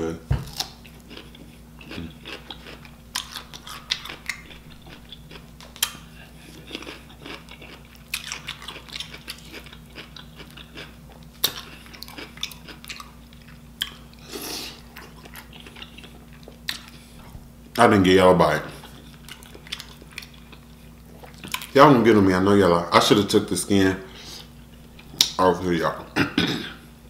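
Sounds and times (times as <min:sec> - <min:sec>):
pickle crunches: 0:00.4 - 0:17.0
chewing and wet mouth noises: 0:00.5 - 0:17.4, 0:18.7 - 0:21.8.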